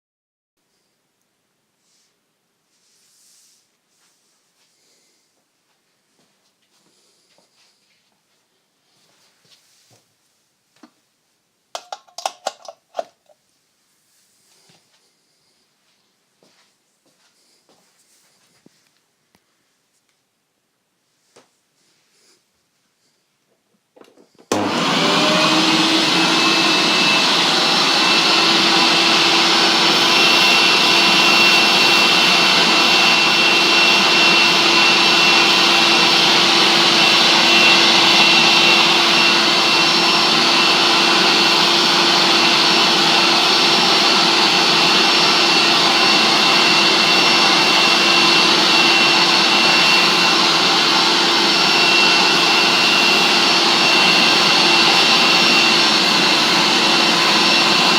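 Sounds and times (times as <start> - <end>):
vacuum cleaner motor running: 24.0 - 57.9.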